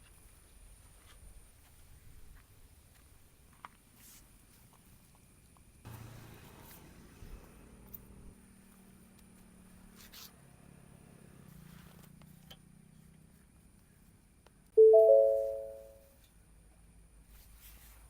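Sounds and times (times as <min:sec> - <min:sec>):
three-note chime: 0:14.8 - 0:15.9.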